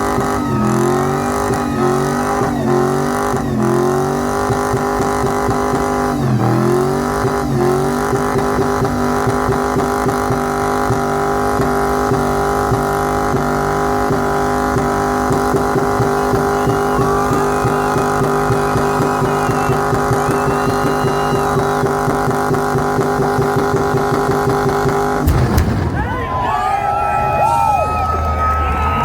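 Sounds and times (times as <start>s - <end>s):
crowd cheering and whistling: 0.0s - 11.5s, 14.0s - 25.2s, 25.8s - 29.0s
car engine revving with stutter: 0.0s - 25.4s.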